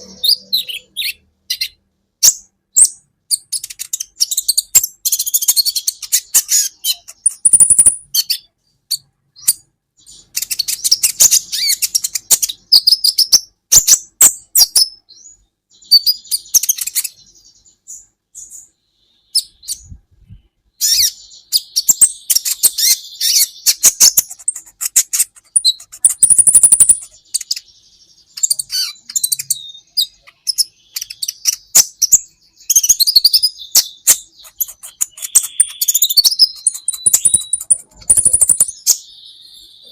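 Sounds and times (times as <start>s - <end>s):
bird twittering and chirping: 0.0s - 39.9s
thin bird whistles: 17.9s - 39.9s.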